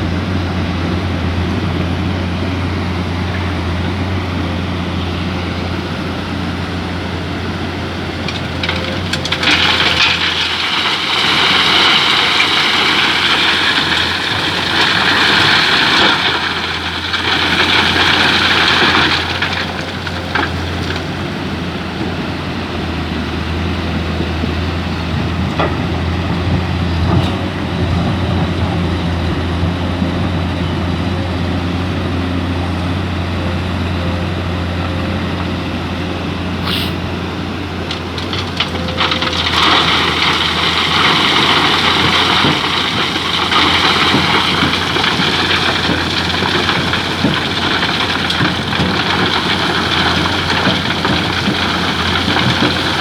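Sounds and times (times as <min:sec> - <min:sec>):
excavator diesel engine running: 0:00.0 - 0:53.0
loud hissing rush: 0:36.6 - 0:37.1.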